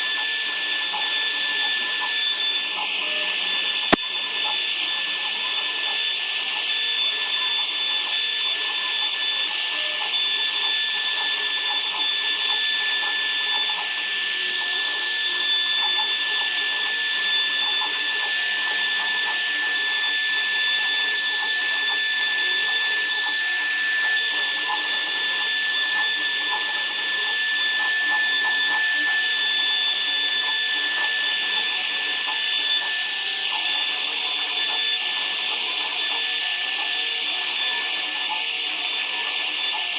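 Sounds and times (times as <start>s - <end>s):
woodworking power tool whining: 0.0s - 39.9s.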